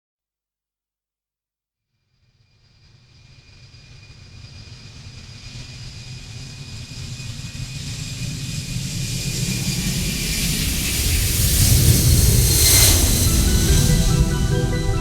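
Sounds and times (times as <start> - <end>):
faint high whine: 9.5 - 15.0.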